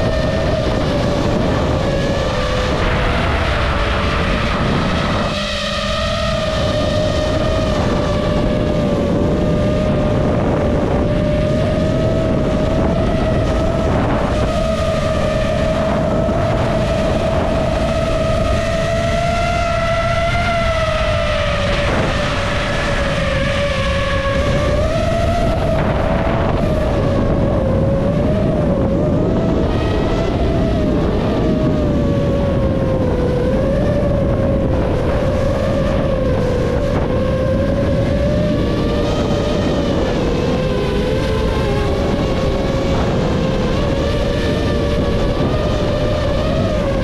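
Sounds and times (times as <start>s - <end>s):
drone propellers whining: 0.0s - 47.0s
wind rumbling on microphone: 0.0s - 47.0s.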